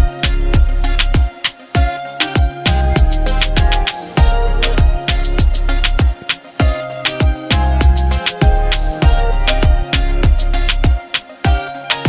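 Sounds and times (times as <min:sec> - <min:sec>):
deep electronic kick drums: 0:00.0 - 0:11.6
crisp hi-hat hits: 0:00.0 - 0:12.0
held synth tones: 0:02.7 - 0:06.2.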